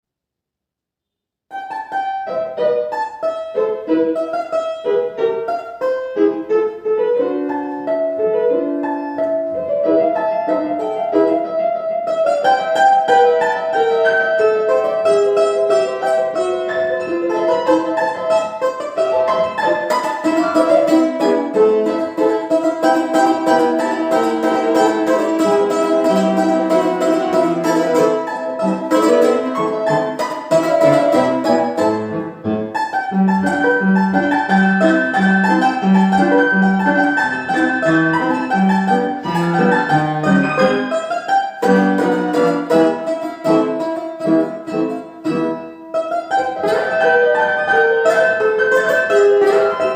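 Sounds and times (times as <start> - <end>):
piano accompaniment: 1.5 - 49.9
plucked string instrument melody: 1.5 - 49.9.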